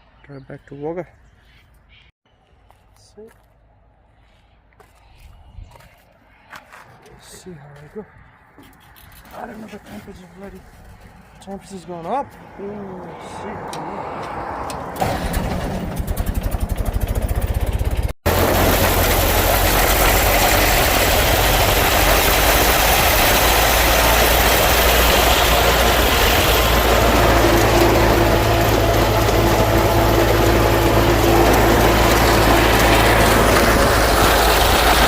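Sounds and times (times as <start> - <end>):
road and wind noise: 3.4 - 15.9
old car engine idling: 15.0 - 35.0.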